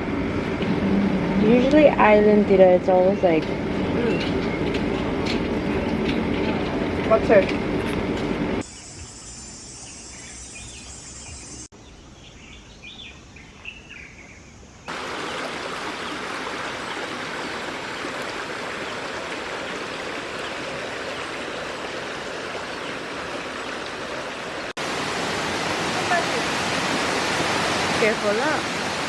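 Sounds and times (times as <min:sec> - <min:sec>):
birds chirping: 0:01.4 - 0:06.2, 0:08.6 - 0:24.2
stream water rushing: 0:14.9 - 0:29.0.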